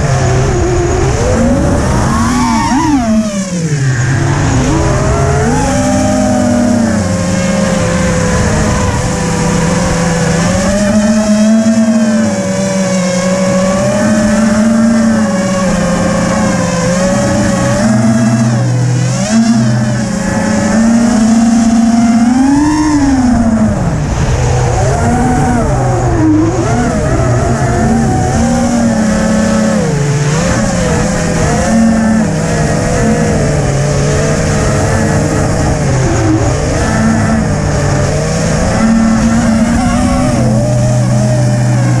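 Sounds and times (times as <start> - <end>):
strong wind rushing: 0.0 - 11.0, 22.3 - 31.6
drone motors whining: 0.0 - 42.0.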